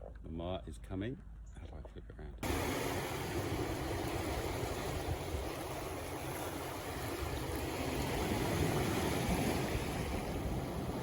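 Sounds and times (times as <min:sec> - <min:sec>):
sea waves: 0:02.4 - 0:11.0
wind buffeting microphone: 0:02.4 - 0:11.0.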